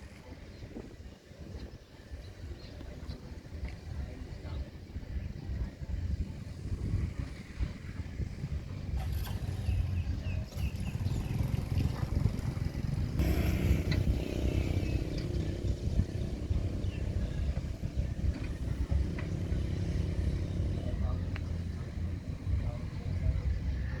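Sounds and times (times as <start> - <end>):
diesel engine rumbling: 8.8 - 24.0
steady higher hum: 13.2 - 20.9.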